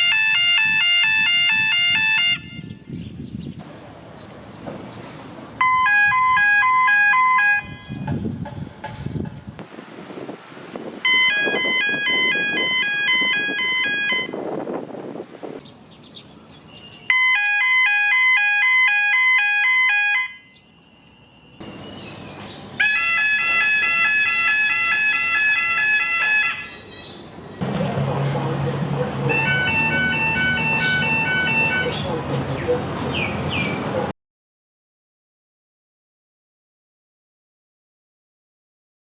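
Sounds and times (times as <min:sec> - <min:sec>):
two-pitch electronic warning tone: 0:11.0 - 0:14.4.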